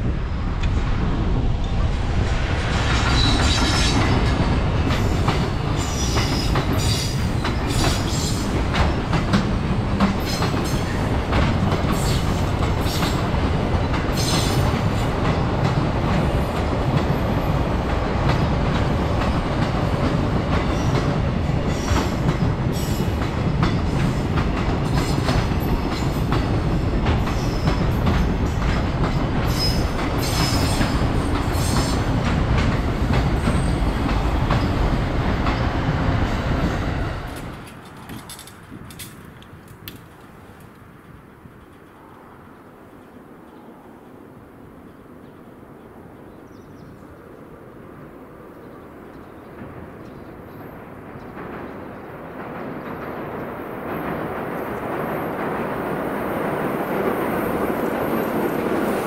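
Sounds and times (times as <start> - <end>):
freight train rolling past: 0.0 - 59.0
wheels clacking over rail joints: 2.9 - 42.3.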